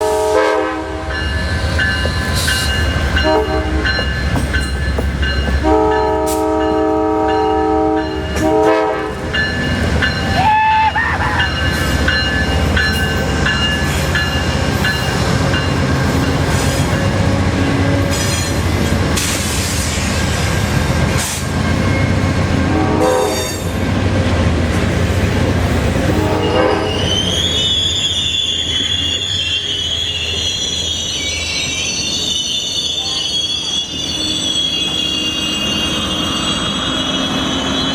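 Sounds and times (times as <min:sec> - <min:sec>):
train horn blasts: 0:00.0 - 0:01.3, 0:03.2 - 0:04.1, 0:05.6 - 0:09.2, 0:22.6 - 0:23.7, 0:26.0 - 0:27.1, 0:33.0 - 0:34.6
train passing with low rumble: 0:00.0 - 0:37.9
high-pitched wheel squeal: 0:26.4 - 0:37.9.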